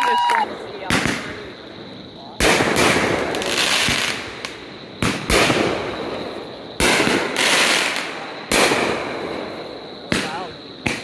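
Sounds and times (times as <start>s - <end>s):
firework shells bursting: 2.4s - 11.0s.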